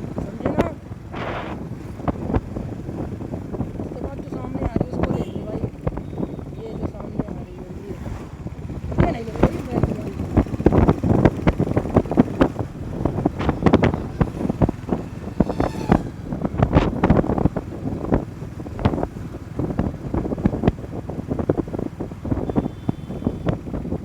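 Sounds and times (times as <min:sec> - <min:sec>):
motorcycle running: 0:00.0 - 0:24.0
wind buffeting microphone: 0:00.0 - 0:24.0.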